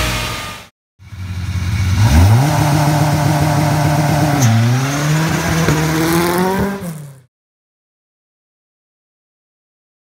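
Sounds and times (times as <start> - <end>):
rally car engine accelerating: 1.0 - 7.3.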